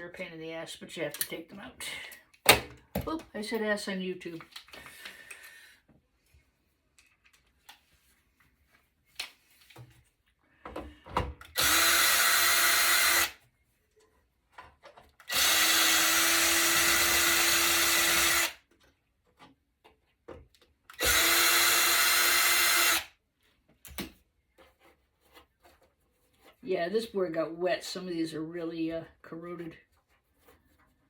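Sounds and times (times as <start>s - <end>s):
cordless drill running: 11.5s - 13.4s, 15.2s - 18.6s, 21.0s - 23.1s.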